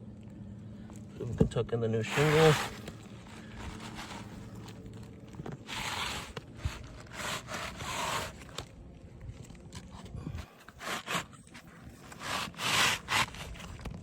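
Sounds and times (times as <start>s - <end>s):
shingle scraping against shingles: 2.0s - 8.7s, 9.7s - 14.0s.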